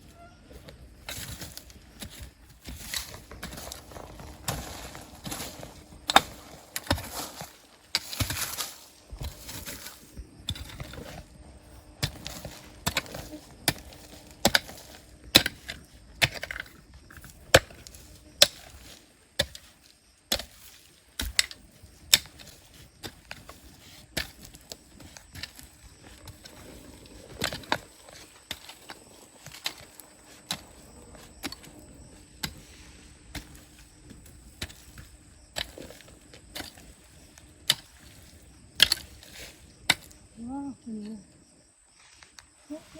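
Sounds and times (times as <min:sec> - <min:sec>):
hand tools striking rock: 0:01.0 - 0:40.3.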